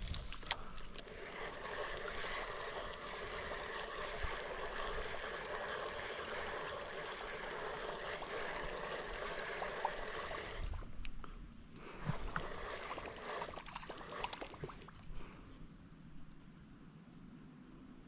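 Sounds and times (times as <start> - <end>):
rushing trickling water: 1.0 - 10.9.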